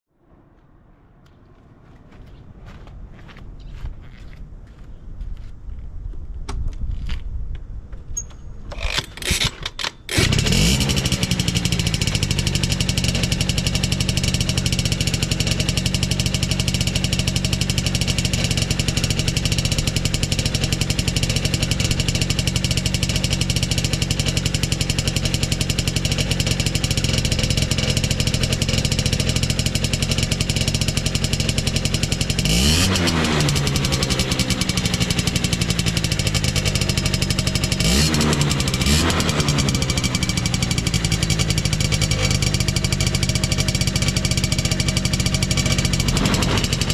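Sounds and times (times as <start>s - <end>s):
motorcycle engine cranking: 8.2s - 46.9s
two-stroke motorcycle engine idling: 10.1s - 46.9s.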